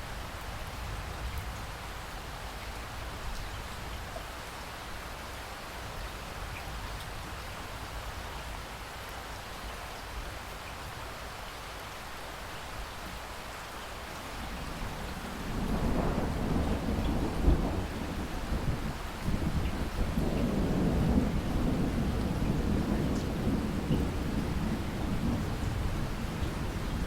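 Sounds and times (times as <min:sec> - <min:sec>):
steady rainfall: 0:00.0 - 0:27.0
thunder rumbling and cracking: 0:14.5 - 0:27.0.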